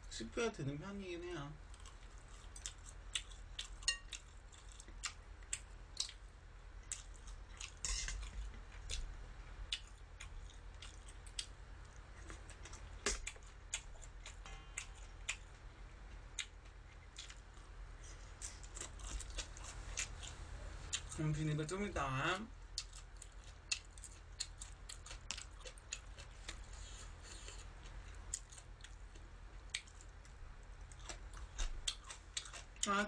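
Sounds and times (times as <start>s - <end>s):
steady low hum: 0.0s - 33.0s
close chewing: 1.7s - 6.2s, 6.8s - 15.5s, 16.1s - 21.3s, 22.7s - 33.0s.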